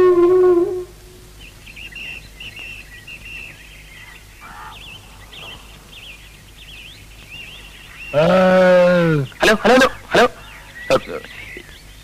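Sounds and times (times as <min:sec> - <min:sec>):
birds chirping: 0:00.0 - 0:12.0
faint low hum: 0:00.0 - 0:12.0.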